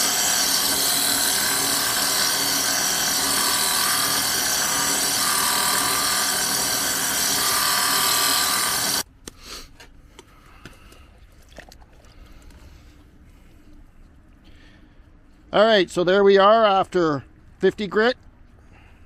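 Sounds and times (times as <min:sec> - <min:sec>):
drill press grinding stone: 0:00.0 - 0:09.0.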